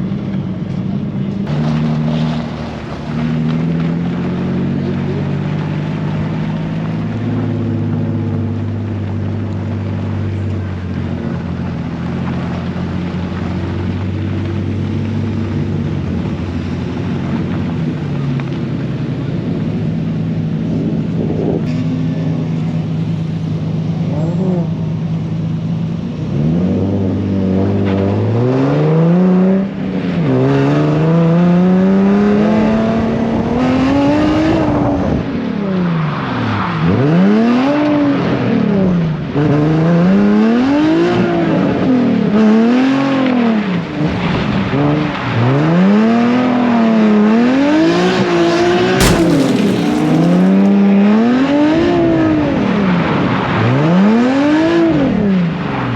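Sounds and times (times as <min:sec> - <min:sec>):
sharp crack: 0:49.0 - 0:51.0.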